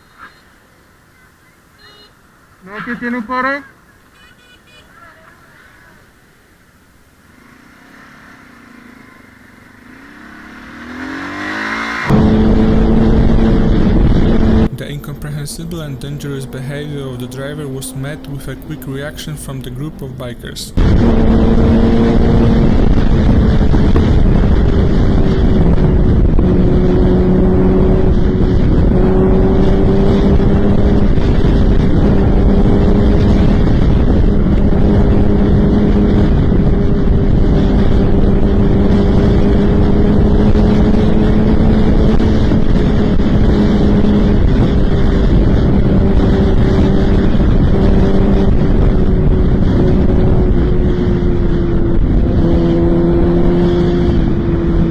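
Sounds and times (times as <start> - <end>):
motorcycle engine running: 7.1 - 18.2, 20.8 - 54.9
wind rush on microphone: 10.8 - 16.8, 20.8 - 54.9.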